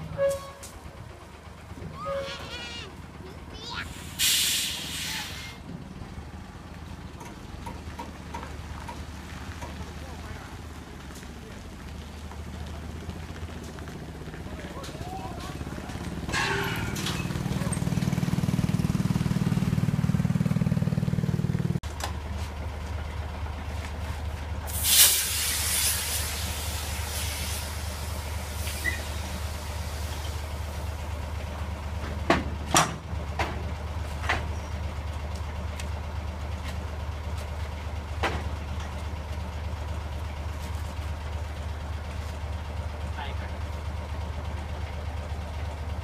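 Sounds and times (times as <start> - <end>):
truck diesel engine idling: 0.0 - 46.0
hiss of released air: 3.9 - 5.6, 24.7 - 30.7.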